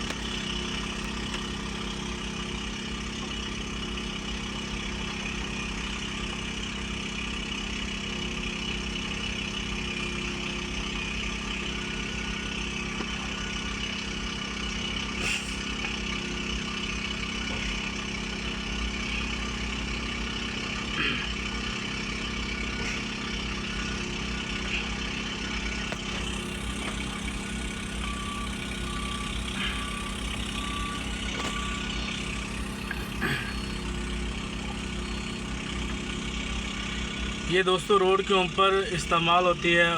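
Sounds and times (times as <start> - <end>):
diesel machinery engine drone: 0.0 - 39.9
high beeps: 26.2 - 35.6.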